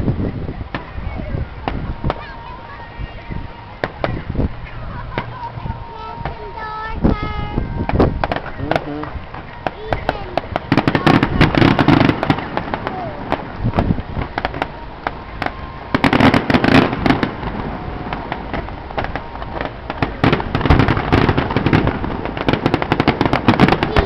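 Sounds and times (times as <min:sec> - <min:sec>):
fireworks crackling bangs and pops: 0:00.0 - 0:24.0.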